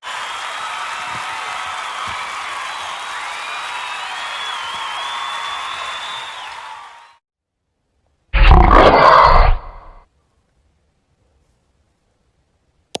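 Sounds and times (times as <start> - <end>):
loud rough roar: 8.4 - 10.0.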